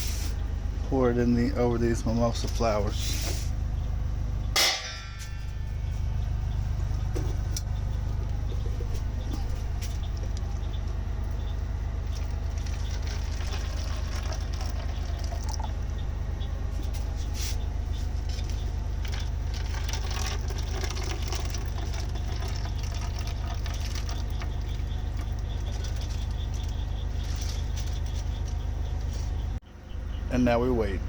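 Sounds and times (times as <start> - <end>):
steady low rumble: 0.0 - 31.0
tea pouring into cups: 12.1 - 15.8, 19.0 - 26.7.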